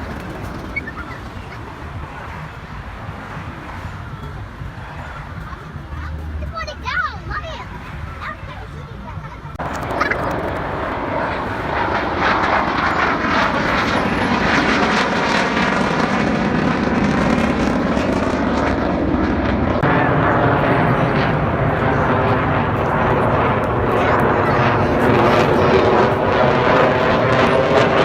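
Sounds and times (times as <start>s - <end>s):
aircraft engine roar flying past: 0.0s - 6.4s, 7.1s - 28.0s.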